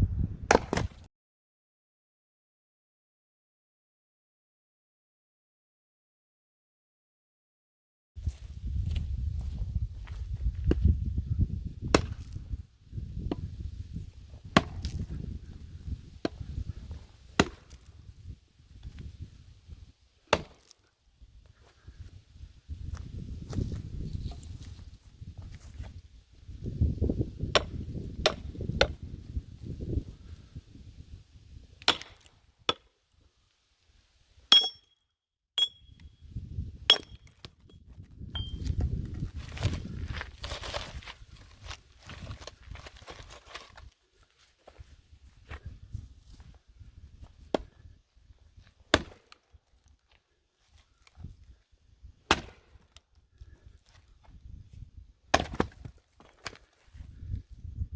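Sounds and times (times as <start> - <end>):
axe and hammer striking log: 0.5 - 1.0, 11.9 - 12.4, 14.6 - 15.0, 17.4 - 17.9, 20.3 - 20.7, 27.5 - 29.0, 31.8 - 32.9, 34.5 - 34.8, 48.9 - 49.4, 52.3 - 52.8, 55.3 - 56.6
hammer clinking on axe head: 34.5 - 34.9, 35.6 - 36.0.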